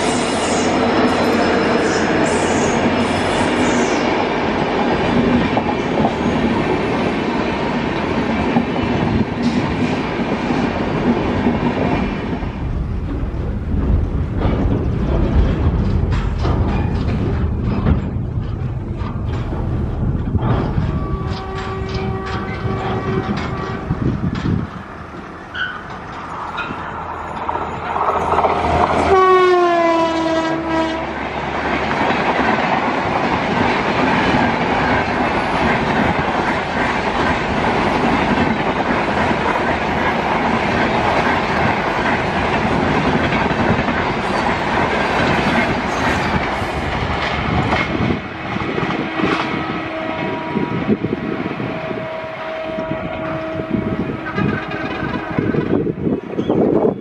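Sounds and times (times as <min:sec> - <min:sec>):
train wheels rumbling and clattering: 0:00.0 - 0:57.0
locomotive horn: 0:20.9 - 0:24.1, 0:28.6 - 0:31.2, 0:49.0 - 0:55.9.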